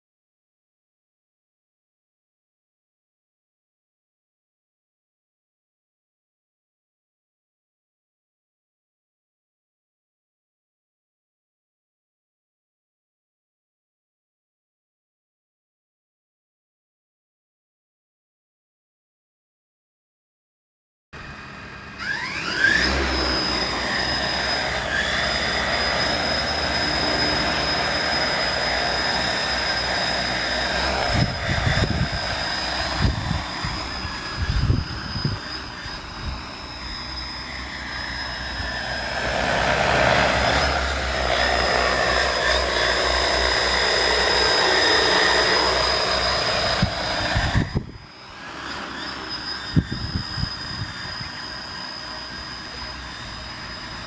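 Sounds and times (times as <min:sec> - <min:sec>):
drone motors whining: 0:21.2 - 0:54.0
wind on microphone: 0:30.8 - 0:37.0, 0:46.6 - 0:48.1, 0:49.7 - 0:51.4.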